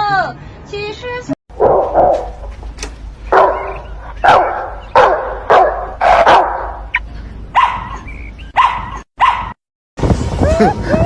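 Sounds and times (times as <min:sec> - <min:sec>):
dog barking: 0:01.6 - 0:02.4, 0:03.3 - 0:06.9, 0:07.6 - 0:09.6.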